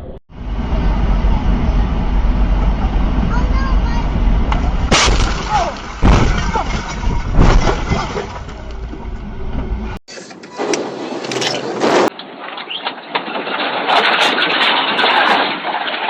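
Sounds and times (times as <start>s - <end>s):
heavy vehicle road rumble: 0.0s - 12.4s
sharp bangs: 1.0s - 10.0s.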